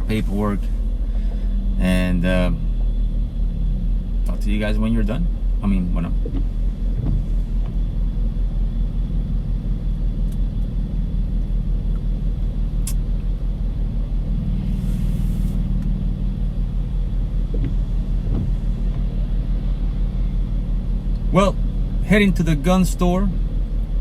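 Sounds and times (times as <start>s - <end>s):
car engine and road rumble: 0.0s - 24.0s
brief hiss: 14.7s - 15.6s.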